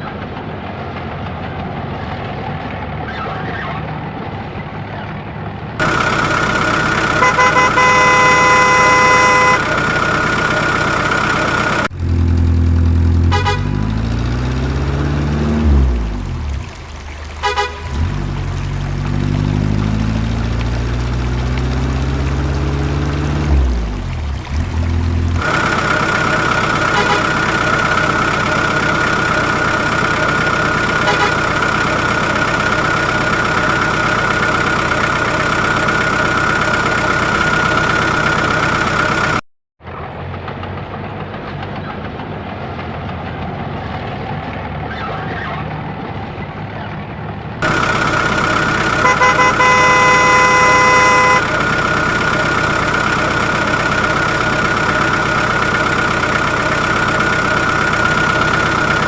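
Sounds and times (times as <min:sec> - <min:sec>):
rough engine sound: 0:00.0 - 0:59.0
vehicle engine humming: 0:00.0 - 0:59.0
vehicle horn: 0:05.8 - 0:11.9, 0:13.2 - 0:13.9, 0:17.4 - 0:18.2, 0:25.4 - 0:27.8, 0:31.0 - 0:31.7, 0:47.6 - 0:51.8.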